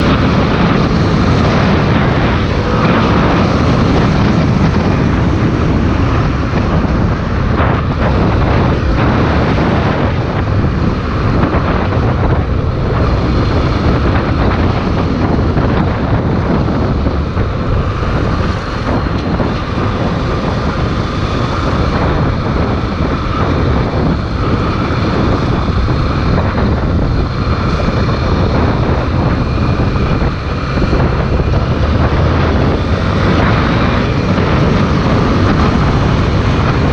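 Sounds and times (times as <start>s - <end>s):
motorcycle engine running: 0.0s - 36.9s
rush of riding wind: 0.0s - 36.9s.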